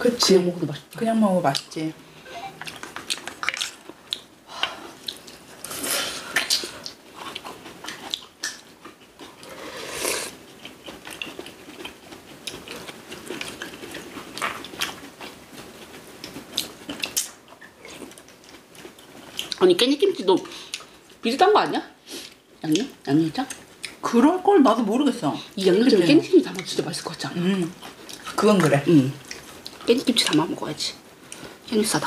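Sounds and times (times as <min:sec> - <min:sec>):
close chewing and biting food: 0:02.6 - 0:05.5, 0:06.3 - 0:09.6, 0:10.3 - 0:19.6.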